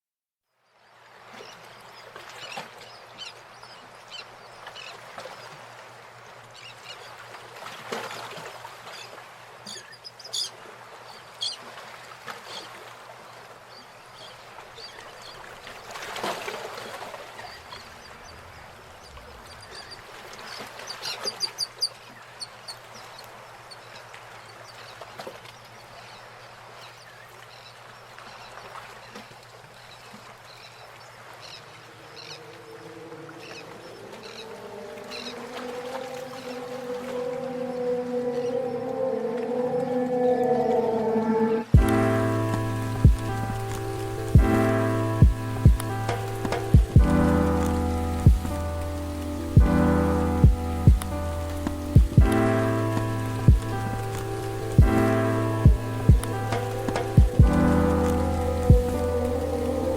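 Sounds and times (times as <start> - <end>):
birds calling: 30.5 - 59.9
background haze: 32.3 - 59.9
low hum: 32.3 - 59.9.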